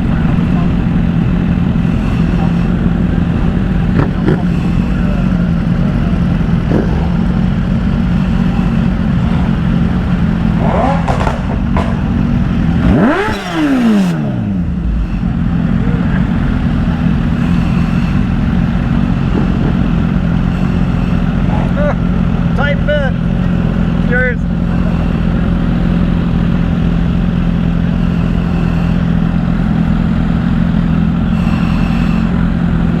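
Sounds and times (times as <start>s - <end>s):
engine revving sharply: 0.0s - 18.5s
engines idling: 0.0s - 33.0s.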